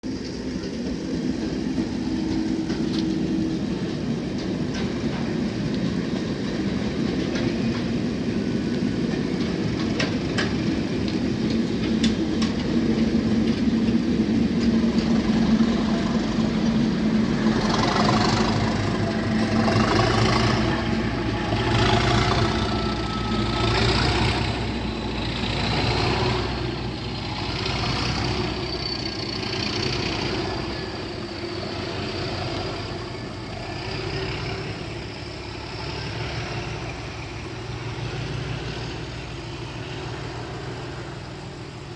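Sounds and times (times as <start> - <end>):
diesel locomotive engine working: 0.0 - 41.9
turbocharger whistle: 17.6 - 37.4.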